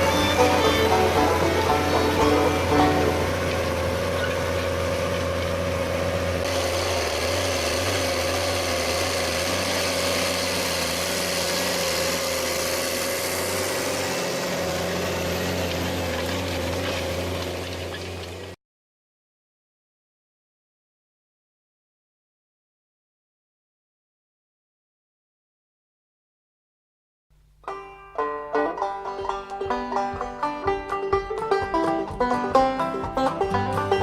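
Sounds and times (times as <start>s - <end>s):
tractor engine hum: 0.0s - 18.6s, 27.7s - 34.0s.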